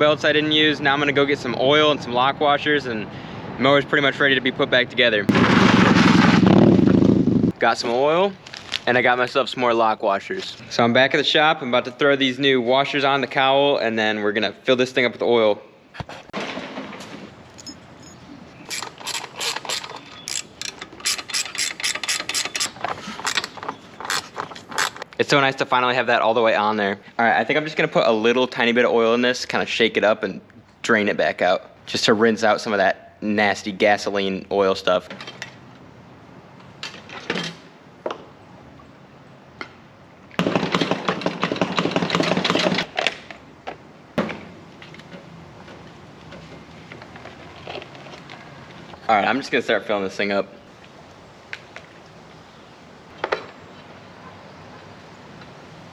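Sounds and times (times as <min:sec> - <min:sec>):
ratchet wrench clicking: 0:17.6 - 0:23.5.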